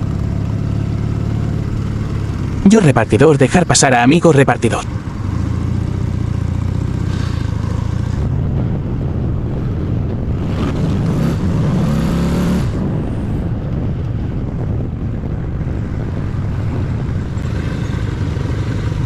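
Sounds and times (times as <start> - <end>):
motorcycle engine running: 0.0 - 3.2, 4.8 - 19.0
road and wind noise: 0.0 - 19.0
passing vehicle engine: 4.8 - 14.4.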